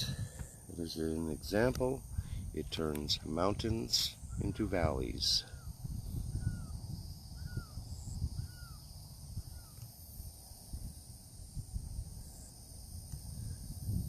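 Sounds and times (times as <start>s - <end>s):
high insect drone: 0.0s - 14.0s
bird calls: 7.4s - 9.9s.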